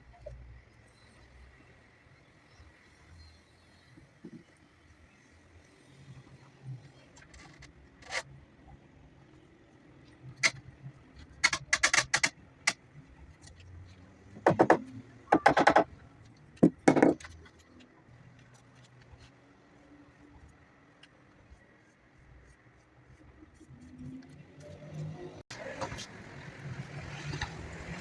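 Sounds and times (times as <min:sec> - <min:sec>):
scattered knocks: 0:14.4 - 0:16.0, 0:16.6 - 0:17.3.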